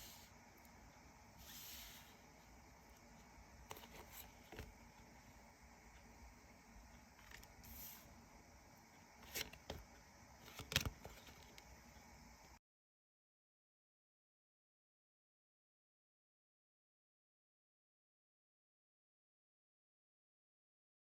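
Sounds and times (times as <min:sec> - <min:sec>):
faint hiss: 0:00.0 - 0:12.6.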